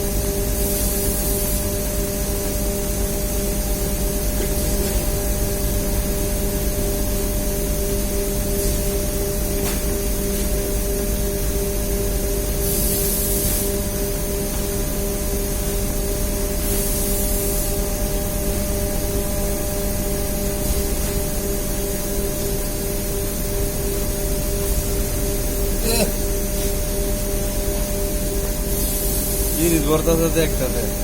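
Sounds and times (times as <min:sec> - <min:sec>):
machinery drone: 0:17.4 - 0:28.7.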